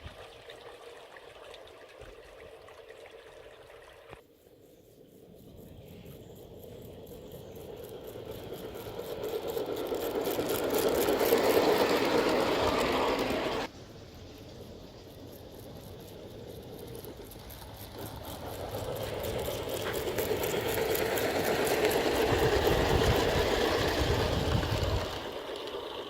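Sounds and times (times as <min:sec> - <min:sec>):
model train running on track: 0:00.1 - 0:26.0
train wheels clicking: 0:05.4 - 0:26.0.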